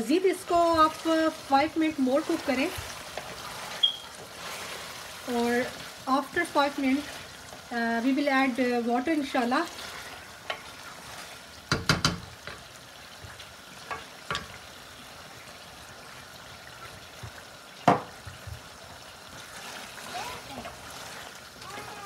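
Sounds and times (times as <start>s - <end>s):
chicken frying in oil: 0.0s - 22.0s
wooden spoon knocking on pot: 11.7s - 12.6s, 17.8s - 18.6s.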